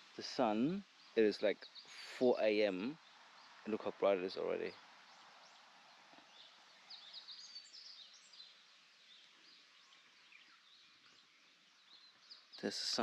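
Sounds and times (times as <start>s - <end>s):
quiet outdoor hiss: 0.0s - 13.0s
birds chirping and whistling: 6.2s - 12.9s.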